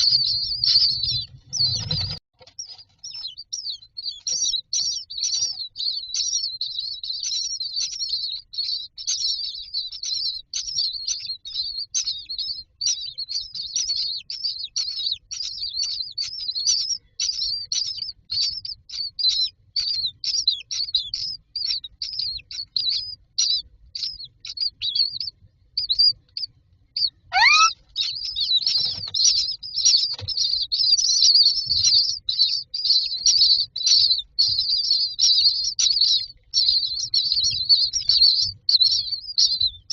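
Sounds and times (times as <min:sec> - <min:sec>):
nestlings chirping: 0:00.0 - 0:39.9
single rising bird call: 0:27.3 - 0:27.7.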